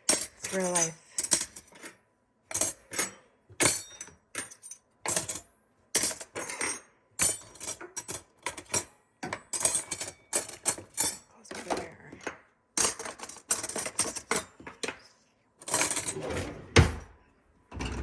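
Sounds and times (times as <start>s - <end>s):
metal cutlery clinking: 0.0s - 11.9s, 12.8s - 15.0s.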